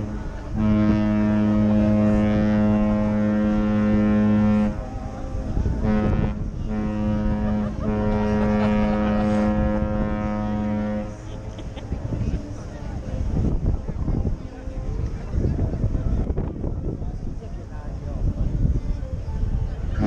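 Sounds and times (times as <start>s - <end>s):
ship's horn blasts: 0.0s - 11.5s.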